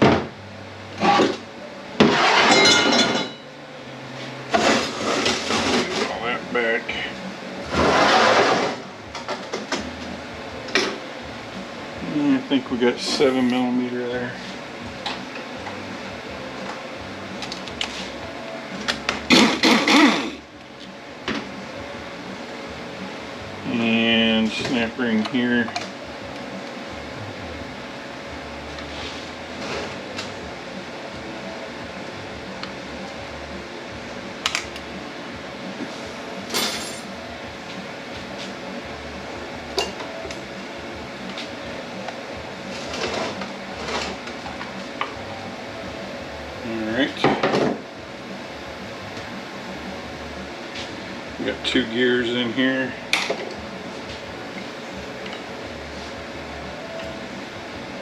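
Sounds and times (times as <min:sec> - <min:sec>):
steady background hum: 0:00.0 - 0:58.0
metal scraping rattle: 0:02.1 - 0:03.4, 0:07.7 - 0:09.5.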